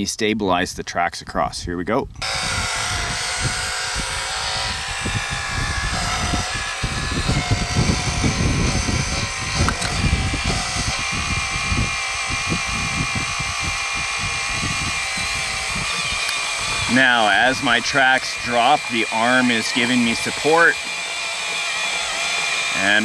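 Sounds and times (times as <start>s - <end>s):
hydraulic pump whine: 2.2s - 23.0s.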